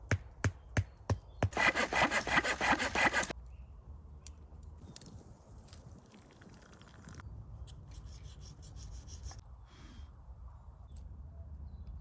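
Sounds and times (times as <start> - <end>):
hand saw cutting wood: 1.4 - 3.3.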